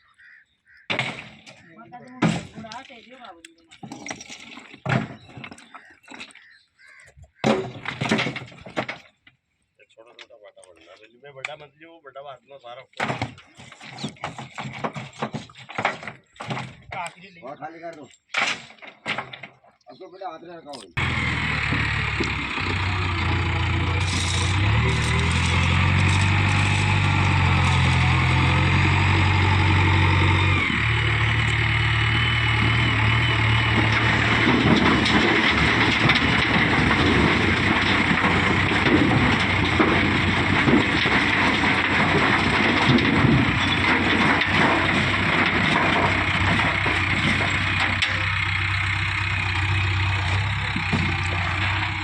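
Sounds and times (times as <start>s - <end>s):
rough clattering noise: 7.4s - 9.4s, 13.0s - 19.8s, 20.9s - 52.0s
heavy diesel engine running: 21.0s - 52.0s.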